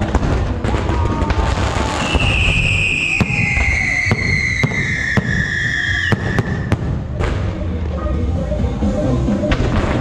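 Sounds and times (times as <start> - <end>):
fireworks bangs: 0.0 - 7.7
high falling whistle: 2.0 - 6.8.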